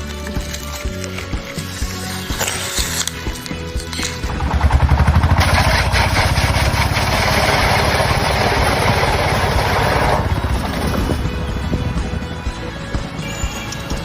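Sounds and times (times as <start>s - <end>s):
machine pulsing beat: 4.3s - 13.1s.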